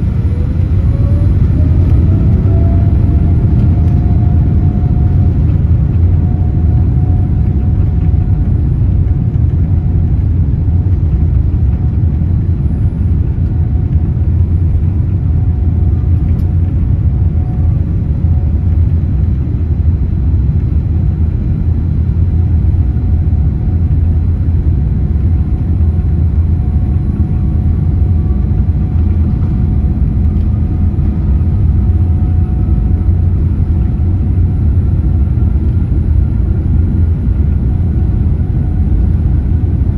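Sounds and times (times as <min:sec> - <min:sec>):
faint whining tones: 0:00.0 - 0:09.8
jet engine cabin rumble: 0:00.0 - 0:39.9.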